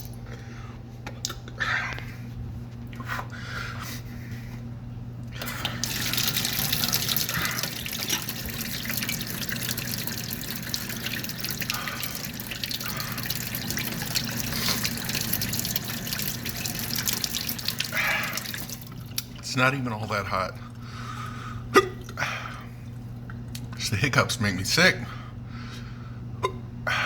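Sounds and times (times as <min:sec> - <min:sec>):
running water: 0:05.4 - 0:20.7.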